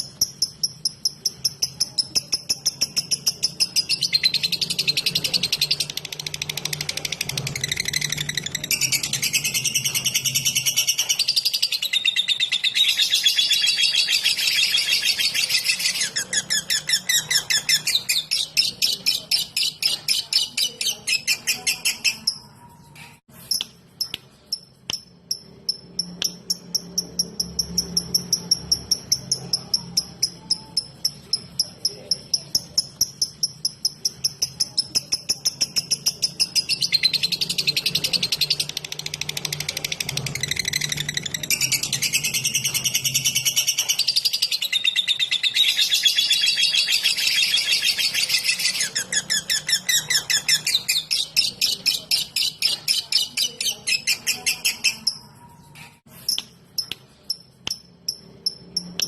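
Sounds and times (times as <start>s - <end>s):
lovebird chattering: 23.4s - 55.4s.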